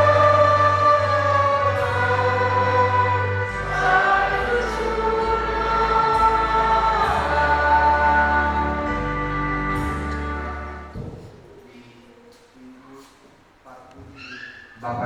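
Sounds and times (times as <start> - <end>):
choir singing a hymn: 0.0 - 11.2
sustained instrumental accompaniment: 0.0 - 11.2.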